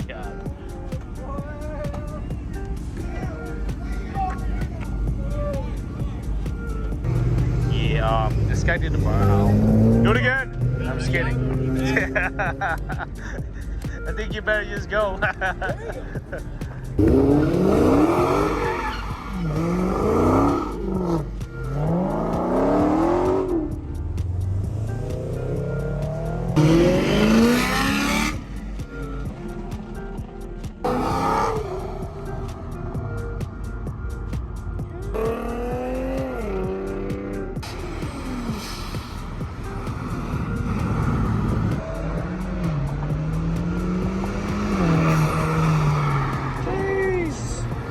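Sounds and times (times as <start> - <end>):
music: 0.0 - 47.9
car engine revving: 4.8 - 13.8, 16.3 - 47.9
tyre noise: 16.7 - 34.0.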